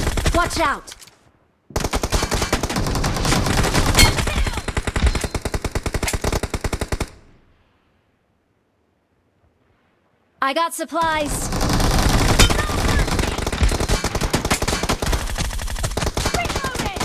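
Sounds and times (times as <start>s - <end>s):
video game automatic gunfire: 1.8s - 7.2s, 11.0s - 17.0s.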